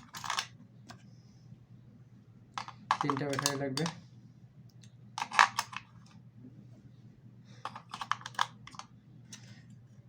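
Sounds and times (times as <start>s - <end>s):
batteries snapping into plastic: 2.6s - 4.0s, 5.2s - 5.9s, 7.7s - 8.9s.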